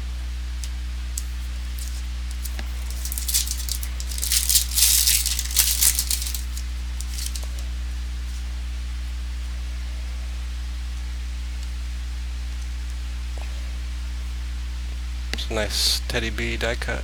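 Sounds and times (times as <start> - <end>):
low electrical hum: 0.0 - 17.0
card packaging crinkling: 0.6 - 7.7.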